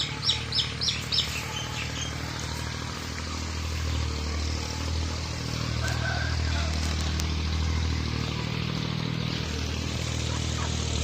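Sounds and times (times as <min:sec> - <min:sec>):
bird chirping: 0:00.0 - 0:03.0
low engine hum: 0:00.0 - 0:11.0.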